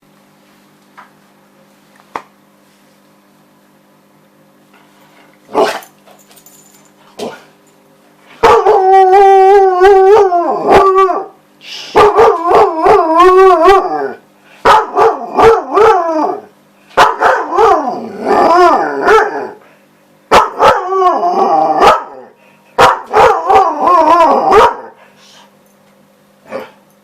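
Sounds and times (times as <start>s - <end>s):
dog barking: 5.5s - 5.8s, 8.4s - 8.8s, 12.0s - 13.0s, 14.6s - 16.0s, 17.0s - 17.8s, 19.0s - 19.4s, 20.3s - 20.8s, 21.8s - 22.2s, 22.8s - 23.6s, 24.5s - 25.0s
dog howling: 8.4s - 11.4s, 12.0s - 14.2s, 14.8s - 16.5s, 17.1s - 19.6s, 20.4s - 22.3s, 23.1s - 25.0s.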